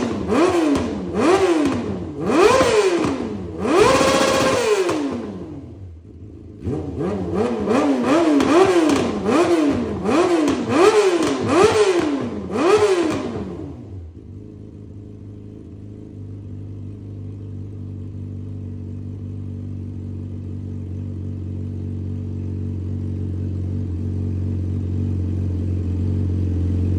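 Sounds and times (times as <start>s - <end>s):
motorcycle engine revving and idling: 0.0s - 26.9s.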